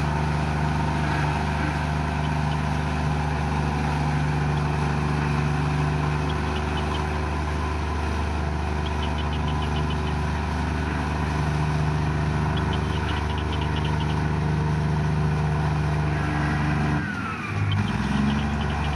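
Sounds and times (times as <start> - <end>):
bulldozer diesel engine running: 0.0 - 18.9.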